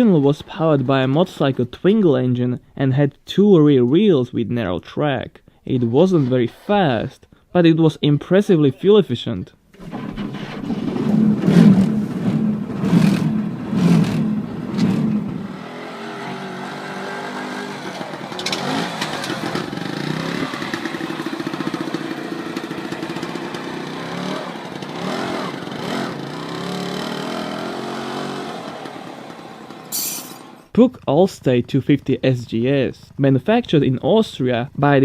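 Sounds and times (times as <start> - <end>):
two-stroke engine revving: 10.6 - 29.9.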